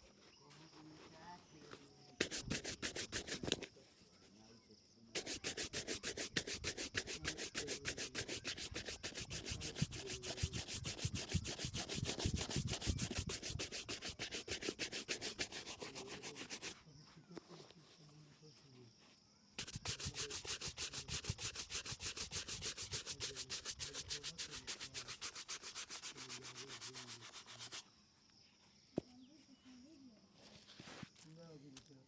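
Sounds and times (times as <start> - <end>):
brush scrubbing a shoe: 2.2 - 3.6, 5.1 - 16.8, 19.6 - 27.9.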